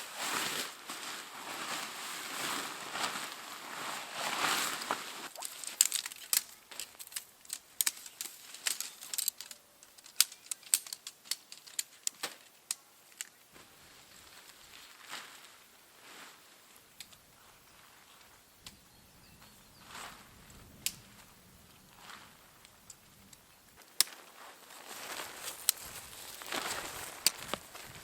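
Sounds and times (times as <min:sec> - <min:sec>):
rustling: 0:00.0 - 0:18.4, 0:19.4 - 0:28.0
dry material crackling: 0:23.8 - 0:28.0.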